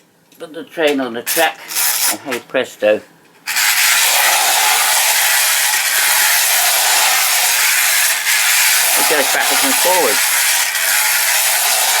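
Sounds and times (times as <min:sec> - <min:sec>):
clockwork toy train whirring rattle: 0:03.4 - 0:12.0.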